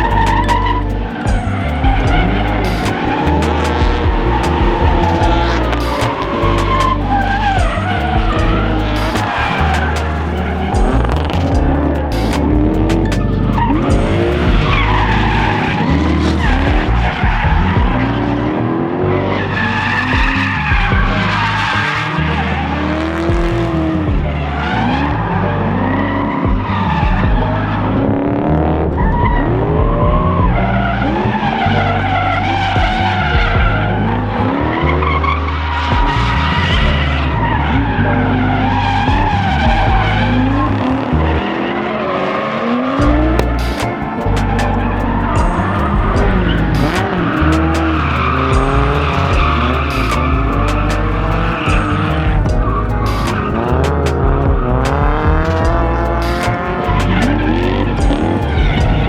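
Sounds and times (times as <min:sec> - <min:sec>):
tyres screeching: 0:00.0 - 0:18.1, 0:34.0 - 0:59.0
car engines revving: 0:00.0 - 0:59.0.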